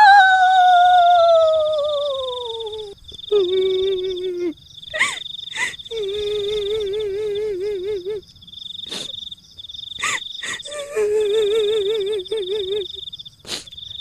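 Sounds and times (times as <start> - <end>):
woman wailing: 0.0 - 8.2, 10.0 - 12.9
high insect trill: 0.0 - 14.0.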